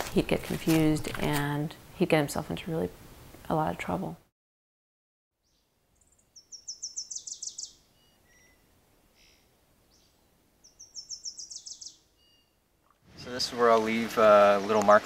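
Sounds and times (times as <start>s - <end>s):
songbird singing: 5.4s - 15.0s.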